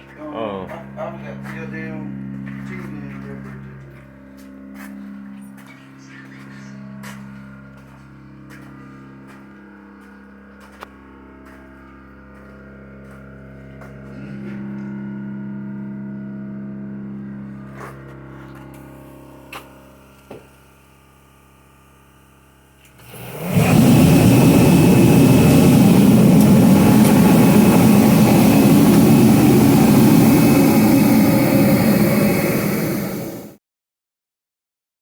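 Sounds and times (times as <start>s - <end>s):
loud rushing machine noise: 23.0s - 33.6s.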